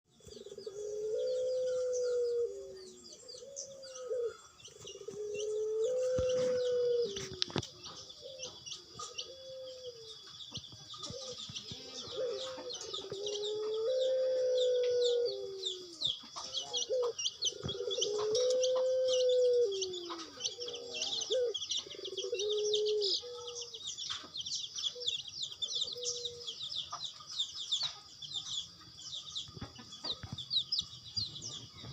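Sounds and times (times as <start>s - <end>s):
dove cooing: 0.1s - 23.8s, 24.8s - 26.6s
high chirping: 0.2s - 31.9s.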